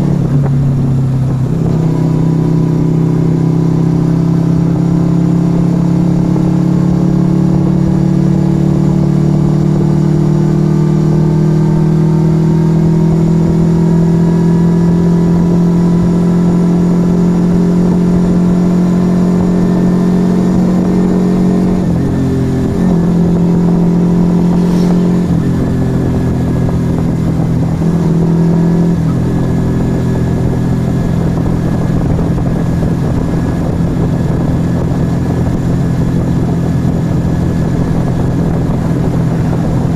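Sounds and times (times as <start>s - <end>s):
wind rush: 0.0s - 6.7s, 20.6s - 39.9s
motorcycle engine revving: 0.0s - 39.9s.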